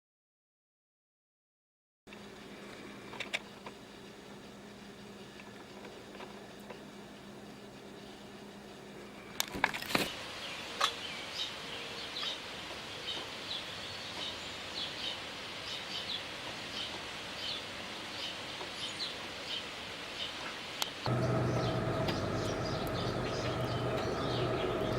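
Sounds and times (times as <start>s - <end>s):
small songbird chirping: 10.4s - 20.4s, 21.1s - 24.9s.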